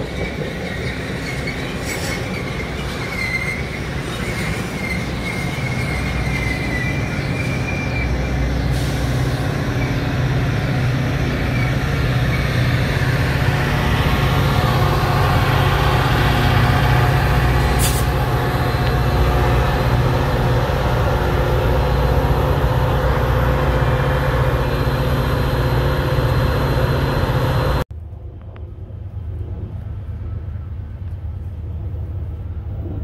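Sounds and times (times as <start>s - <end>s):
railcar wheels squealing: 0.0s - 10.7s, 11.4s - 23.1s
train rumble: 0.0s - 33.0s.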